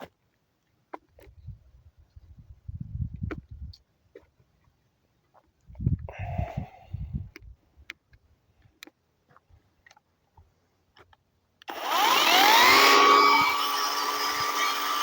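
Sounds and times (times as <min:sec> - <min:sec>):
battery chainsaw motor whine: 0:11.7 - 0:15.0.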